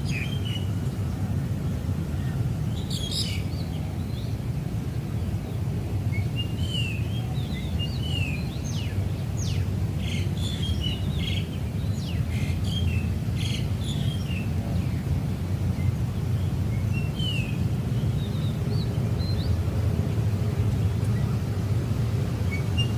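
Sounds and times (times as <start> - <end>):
small birds chirping: 2.2 - 4.4, 6.2 - 21.5.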